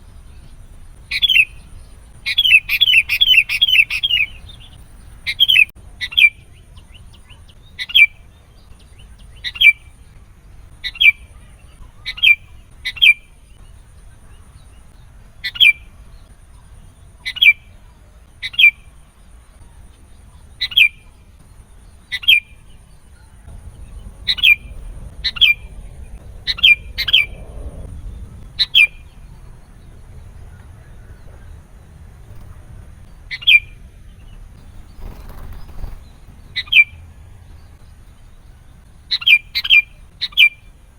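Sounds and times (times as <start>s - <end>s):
bird call notes: 0.4s - 6.5s, 30.2s - 40.7s.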